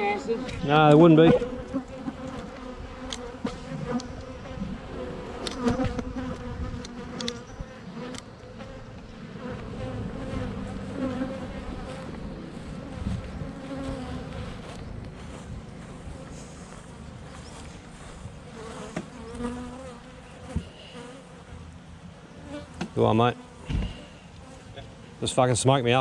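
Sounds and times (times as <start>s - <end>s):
honeybees buzzing: 0.0s - 25.2s
sharp clicks: 6.8s - 7.5s.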